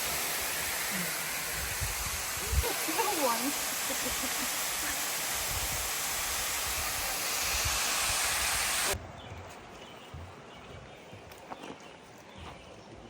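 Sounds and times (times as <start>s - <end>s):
waterfall roaring: 0.0s - 6.6s.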